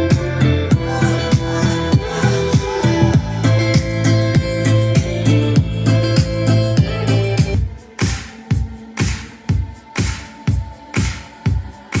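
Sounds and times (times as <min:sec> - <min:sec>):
bass line: 0:00.0 - 0:07.7
electronic dance music: 0:00.0 - 0:12.0.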